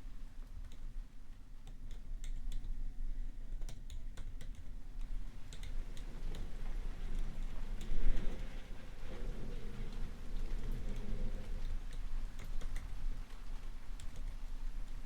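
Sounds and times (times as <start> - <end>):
steady low rain hiss: 0.0 - 15.0
computer keyboard typing: 3.6 - 4.7, 5.5 - 6.4.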